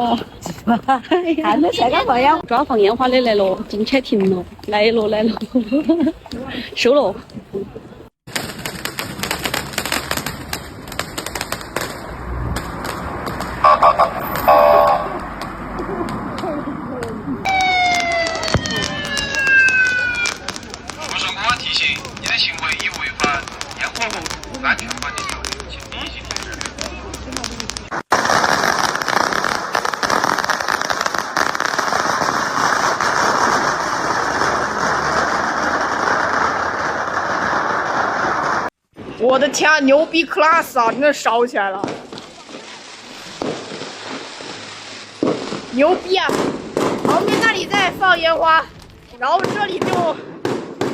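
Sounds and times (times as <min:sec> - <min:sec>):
firecrackers popping: 0:01.4 - 0:39.9, 0:40.5 - 0:50.9
vehicle horn blasts: 0:13.6 - 0:15.2.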